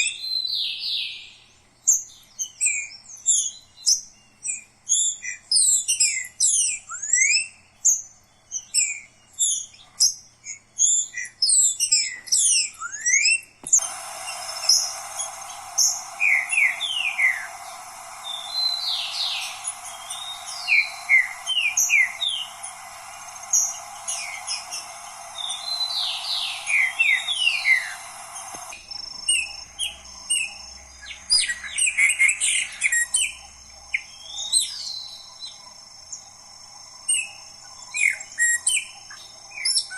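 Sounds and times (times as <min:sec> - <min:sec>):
songbirds chirping and whistling: 0:00.0 - 0:39.9
steady hiss: 0:13.6 - 0:39.9.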